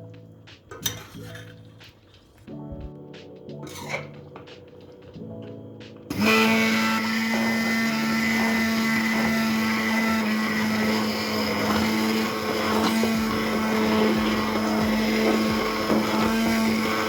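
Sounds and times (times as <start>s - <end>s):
kitchen appliance motor whirring: 6.1s - 17.0s.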